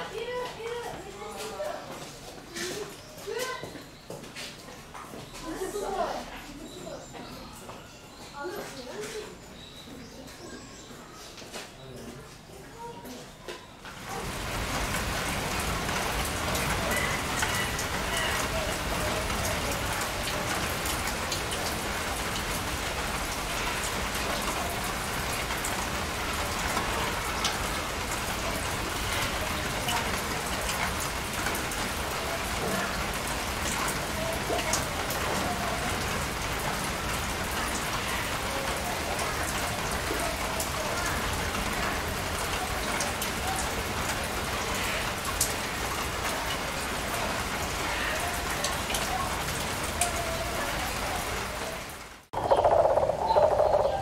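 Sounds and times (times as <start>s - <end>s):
steady rain: 0.0s - 54.0s
water drips: 52.3s - 54.0s.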